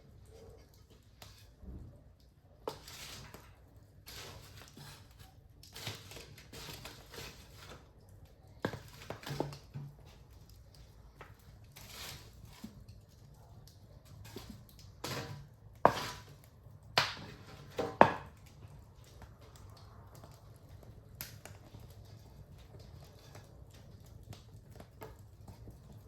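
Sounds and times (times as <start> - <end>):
wood fire crackling: 0.0 - 26.0
sharp pops of fire: 14.2 - 23.4.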